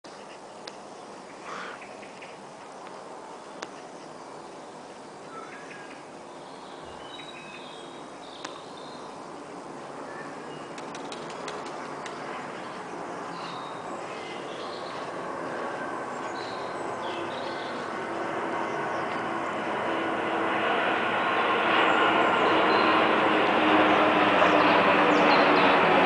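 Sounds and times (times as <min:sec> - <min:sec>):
small birds chirping: 0:00.1 - 0:19.8, 0:21.8 - 0:23.2, 0:23.8 - 0:25.9
airliner engine rumble: 0:00.1 - 0:26.0.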